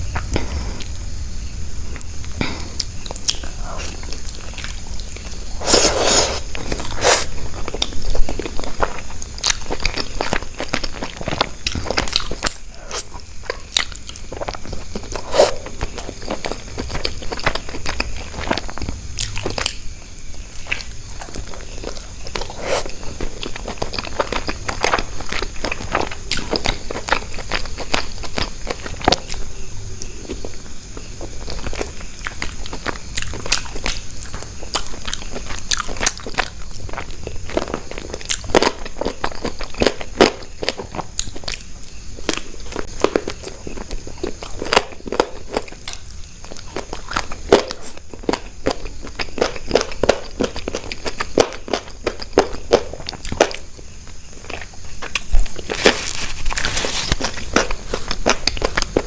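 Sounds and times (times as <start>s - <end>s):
crunchy bites and chewing: 1.9s - 59.0s.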